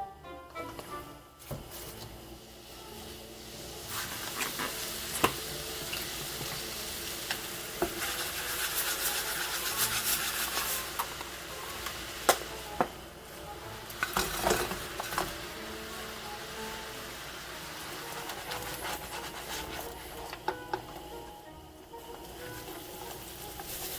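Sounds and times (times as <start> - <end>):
food sizzling in pan: 0.0 - 23.9
spatula clacking and scraping pan: 2.9 - 16.6, 17.7 - 21.0, 22.2 - 23.9.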